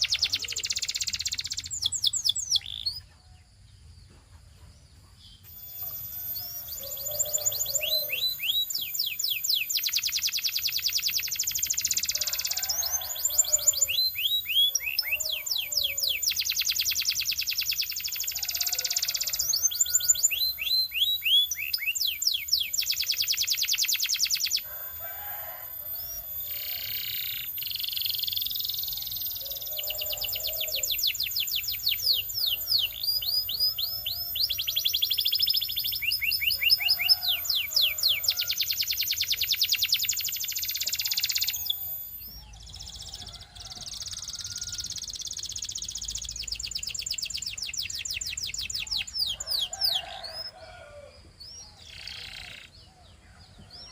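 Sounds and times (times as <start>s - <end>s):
canary singing trills: 0.0s - 3.5s, 4.8s - 53.9s.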